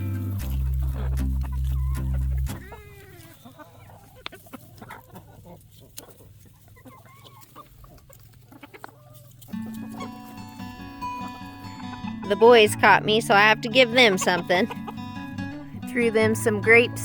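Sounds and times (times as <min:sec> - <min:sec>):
background music: 0:00.0 - 0:03.2, 0:09.5 - 0:17.0
chickens clucking: 0:00.0 - 0:17.0.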